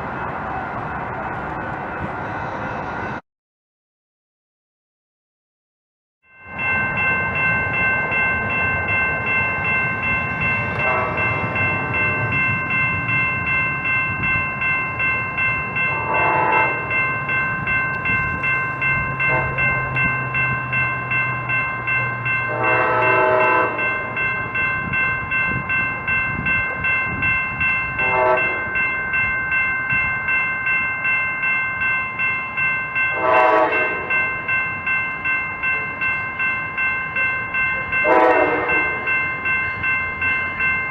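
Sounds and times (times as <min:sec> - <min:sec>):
pulsing ringing: 0:06.3 - 0:40.9
train horn blasts: 0:10.7 - 0:12.3, 0:15.8 - 0:17.0, 0:19.1 - 0:20.0, 0:22.4 - 0:24.2, 0:28.0 - 0:28.7, 0:33.1 - 0:34.2, 0:38.0 - 0:39.1.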